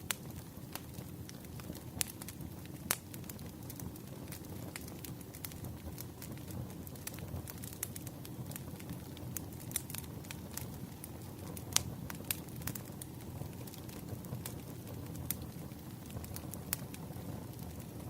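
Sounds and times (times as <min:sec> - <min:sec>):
low rumble of flame: 0:00.0 - 0:18.0
wood crackling and popping: 0:00.0 - 0:18.0.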